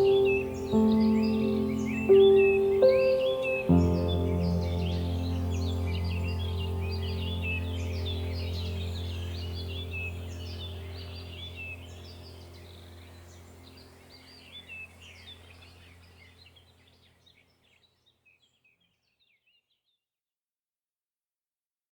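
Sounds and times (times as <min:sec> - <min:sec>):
steady low hum: 0:00.0 - 0:16.8
songbirds chirping: 0:00.0 - 0:20.0.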